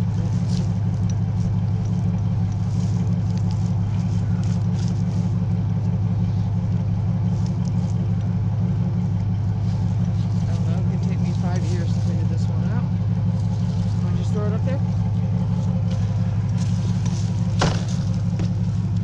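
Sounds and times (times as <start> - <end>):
stroller clicks and rattles: 0.0 - 5.4
vehicle engine idling: 0.0 - 19.0.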